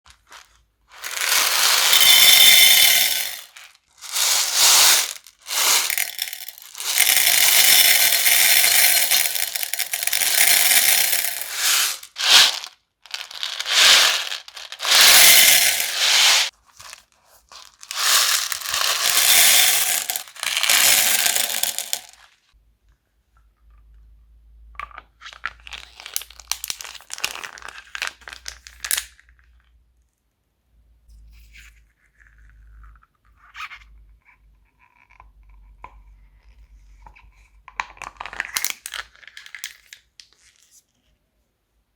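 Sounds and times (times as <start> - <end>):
slime crackling and crinkling: 25.3 - 28.9.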